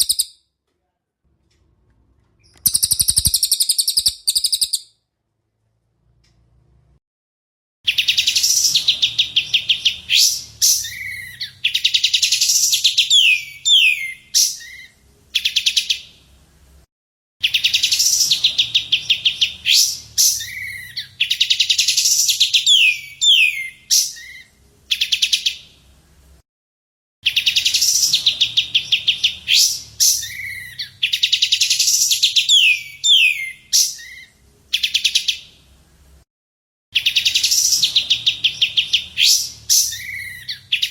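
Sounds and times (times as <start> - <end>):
songbird trills and whistles: 0.0 - 0.4, 2.4 - 4.9, 7.9 - 16.0, 17.4 - 25.6, 27.2 - 35.4, 37.0 - 40.9.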